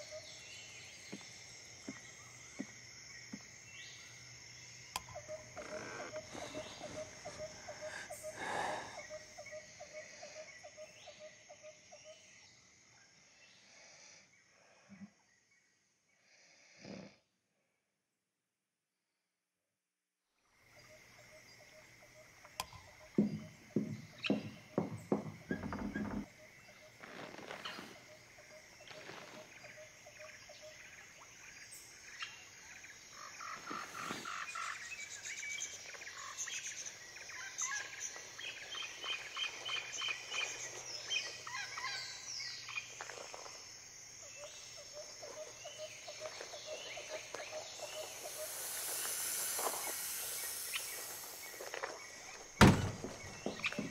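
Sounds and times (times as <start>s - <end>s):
birds chirping: 0.0s - 9.6s, 22.6s - 28.0s, 45.4s - 53.9s
high insect trill: 0.0s - 14.2s, 20.8s - 53.9s.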